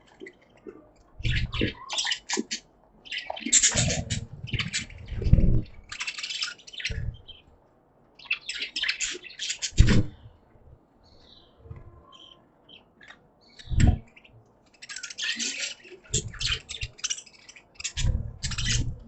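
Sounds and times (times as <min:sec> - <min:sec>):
budgies chirping: 0:00.0 - 0:07.5, 0:08.2 - 0:10.4, 0:11.1 - 0:19.0
low thuds: 0:09.8 - 0:10.2.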